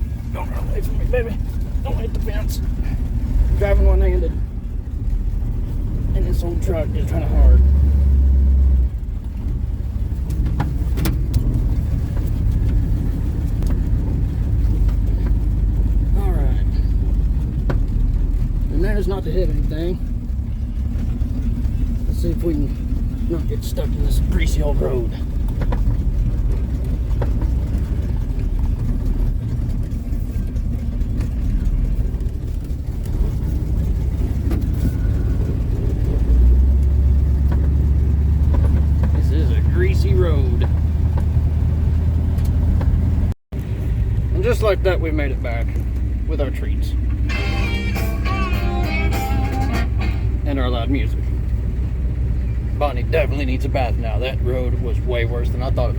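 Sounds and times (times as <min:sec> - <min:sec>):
engine and road rumble: 0:00.0 - 0:55.9
sharp knocks and rattles: 0:16.9 - 0:18.8, 0:25.2 - 0:39.4.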